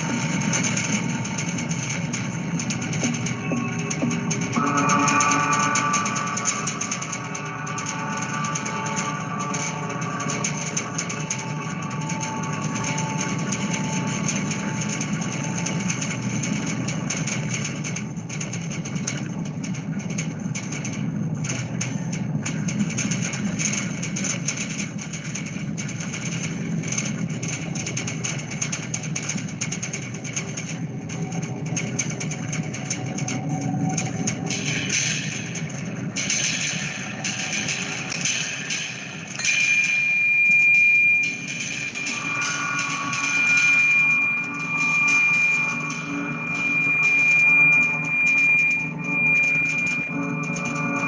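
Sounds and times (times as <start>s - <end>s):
percussion: 0.0s - 51.0s
held tones: 0.8s - 16.8s, 36.8s - 51.0s.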